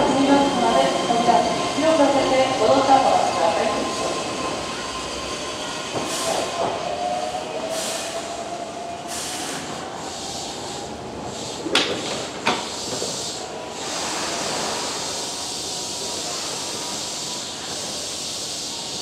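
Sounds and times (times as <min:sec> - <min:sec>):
compressed air hissing: 0:06.0 - 0:08.4, 0:09.0 - 0:19.0.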